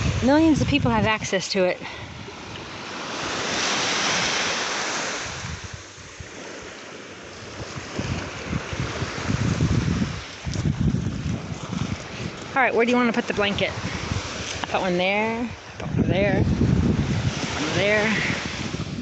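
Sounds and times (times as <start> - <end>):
wind buffeting microphone: 0.0 - 19.0
small wave washing up beach: 2.1 - 14.8.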